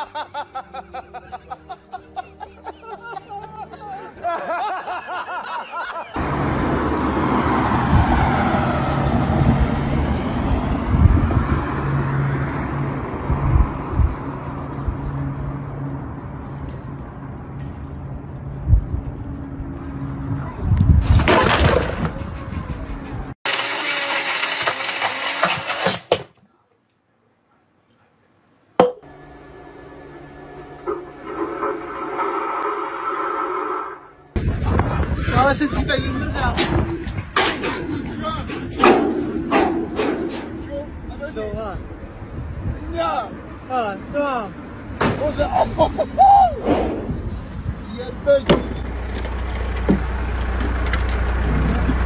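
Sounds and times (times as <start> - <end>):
people laughing: 0.0 - 6.2, 22.0 - 23.4, 34.6 - 37.0, 45.3 - 46.6
road traffic noise: 0.0 - 26.4, 27.0 - 52.0
low motor vehicle hum: 6.2 - 21.2, 28.9 - 52.0
blender running: 23.5 - 25.9.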